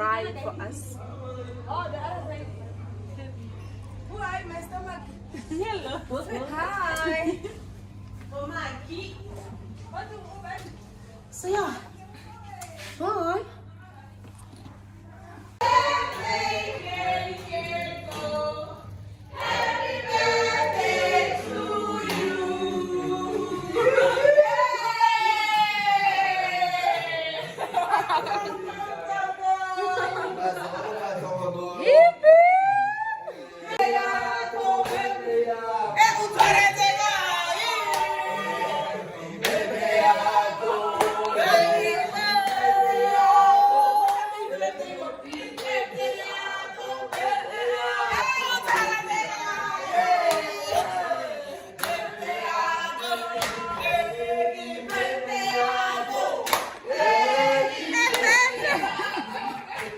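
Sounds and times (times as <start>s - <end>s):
group of voices singing: 15.6s - 30.9s, 33.2s - 59.9s
choir holding long notes: 19.4s - 24.2s, 38.2s - 45.1s.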